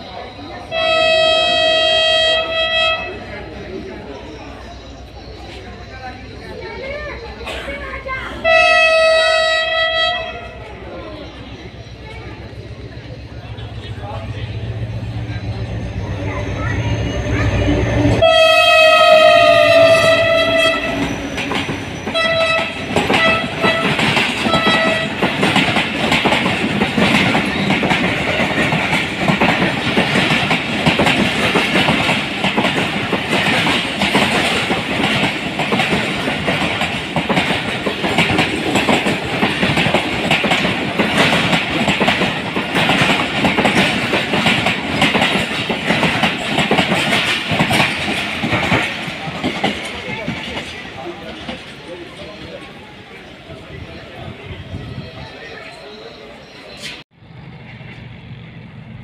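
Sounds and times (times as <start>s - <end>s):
locomotive horn: 0.7s - 3.3s, 8.4s - 10.6s, 17.6s - 21.3s, 22.1s - 25.4s
wheels clacking over rail joints: 18.2s - 52.8s.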